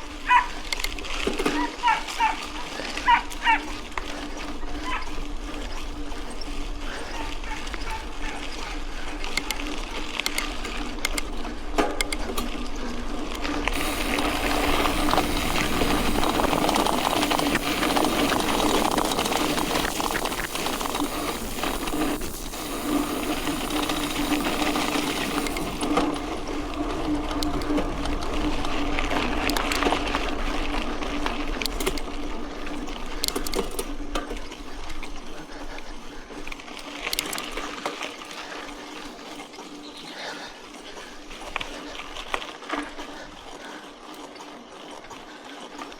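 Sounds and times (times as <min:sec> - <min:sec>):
bicycle tyres on gravel: 0:00.0 - 0:45.9
bike rattling: 0:00.0 - 0:45.9
hiss: 0:13.7 - 0:26.0.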